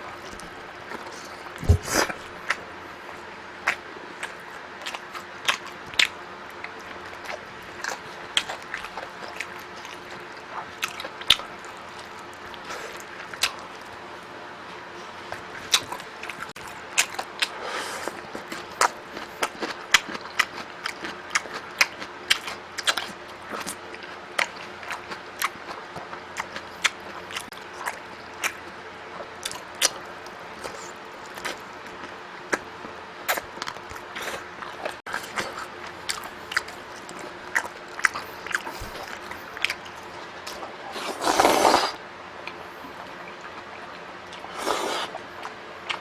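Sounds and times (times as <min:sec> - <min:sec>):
person chewing and biting: 0:00.3 - 0:02.6, 0:33.3 - 0:42.6, 0:44.2 - 0:46.0.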